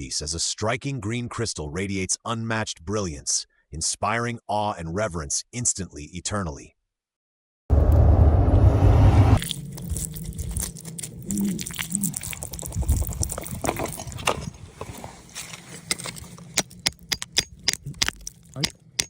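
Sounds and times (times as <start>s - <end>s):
loud rushing noise: 7.7s - 9.4s
hand tools scraping rock: 9.4s - 19.0s.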